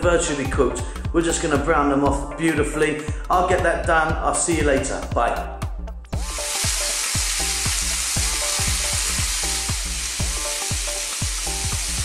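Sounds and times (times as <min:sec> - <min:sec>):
background music with beat: 0:00.0 - 0:12.0
meat sizzling in grill pan: 0:06.2 - 0:12.0.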